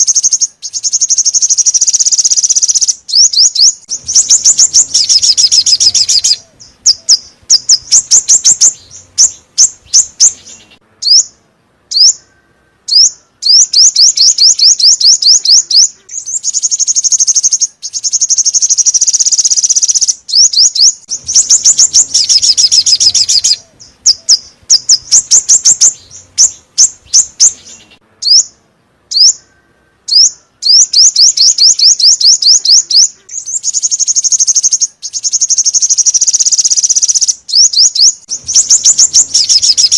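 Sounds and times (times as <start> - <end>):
bird chirps and trills: 0.0 - 39.9.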